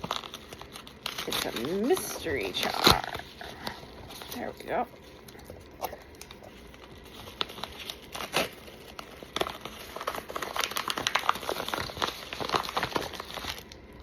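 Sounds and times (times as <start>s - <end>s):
packaging crinkling and rustling: 0.0s - 14.0s.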